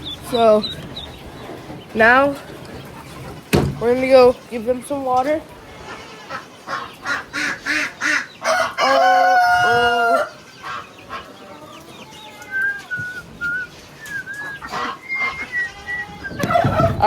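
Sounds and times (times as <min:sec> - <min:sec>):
faint high peeping: 0:00.0 - 0:09.0, 0:09.6 - 0:16.8
rooster crowing: 0:08.4 - 0:10.4.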